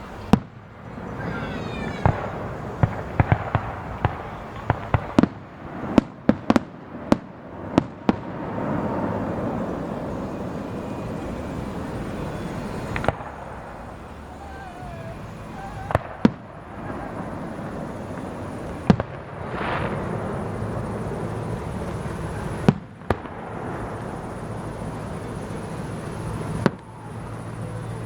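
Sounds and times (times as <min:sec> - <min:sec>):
firework bangs: 0:00.0 - 0:28.0
whistling firework shell: 0:00.0 - 0:28.0.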